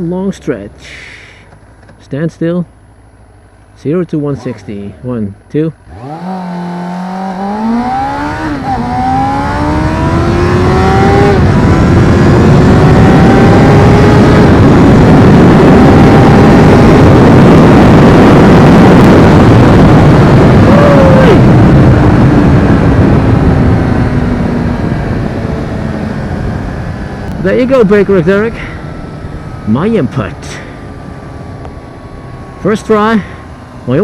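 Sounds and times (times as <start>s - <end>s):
motorcycle engine accelerating: 5.8s - 34.0s
wind rushing on microphone: 7.2s - 34.0s.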